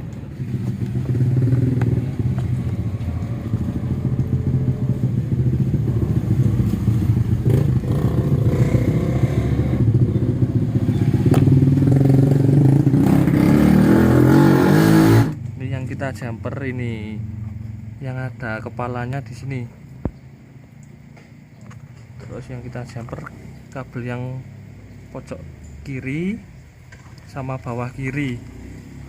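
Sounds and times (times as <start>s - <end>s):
scooter engine idling: 0.0s - 8.0s.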